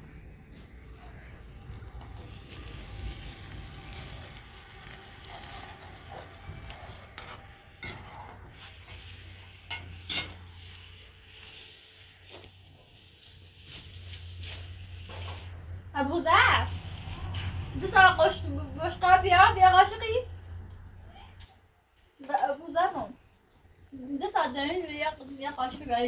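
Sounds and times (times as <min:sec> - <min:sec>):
food sizzling in a pan: 0:00.6 - 0:20.2.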